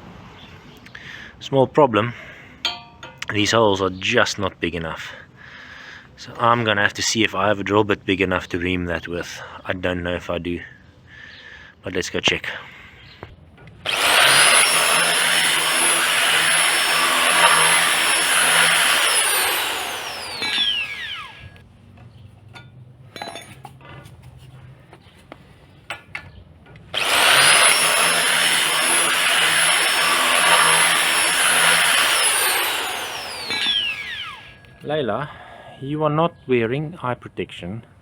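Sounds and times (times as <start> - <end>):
power tool motor whine: 13.9 - 21.6, 27.0 - 34.8.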